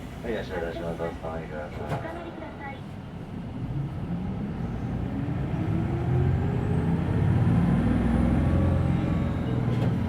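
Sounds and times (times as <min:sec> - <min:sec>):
bus diesel engine accelerating: 0:03.2 - 0:10.0.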